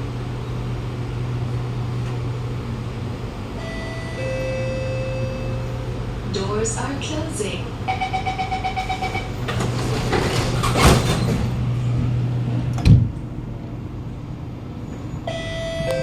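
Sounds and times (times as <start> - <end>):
train low hum: 0.0 - 16.0
train doors sliding shut: 0.1 - 16.0
door warning beeps: 7.9 - 9.9, 15.2 - 16.0.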